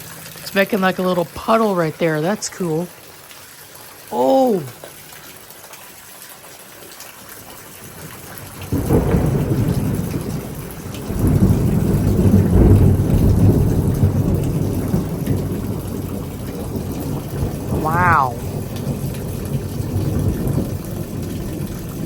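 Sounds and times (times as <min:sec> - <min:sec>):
heavy rain: 0:00.0 - 0:22.0
thunderclap rumbling: 0:08.6 - 0:22.0.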